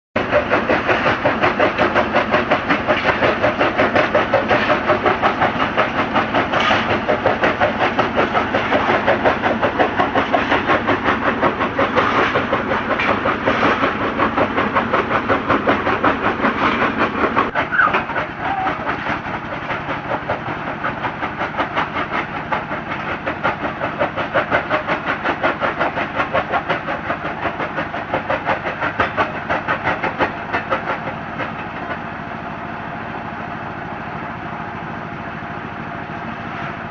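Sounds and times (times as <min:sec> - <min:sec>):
stone crusher rhythmic clatter: 0:00.2 - 0:34.1.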